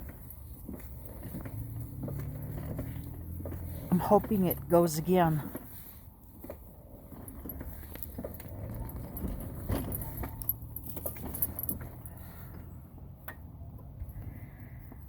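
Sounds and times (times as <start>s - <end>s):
metallic jingling: 7.0s - 12.5s.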